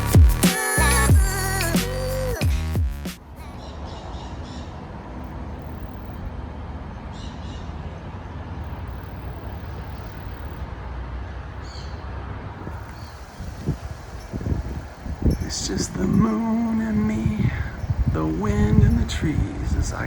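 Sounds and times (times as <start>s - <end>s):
wind rumbling on microphone: 12.3s - 20.0s.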